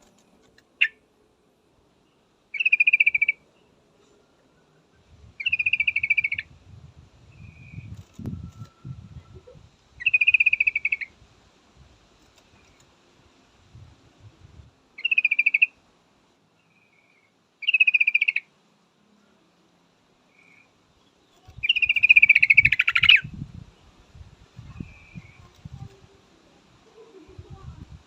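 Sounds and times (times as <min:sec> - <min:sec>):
bird chattering calls: 0:02.5 - 0:03.4, 0:05.4 - 0:06.5, 0:15.0 - 0:15.7, 0:17.6 - 0:18.4, 0:21.4 - 0:23.3.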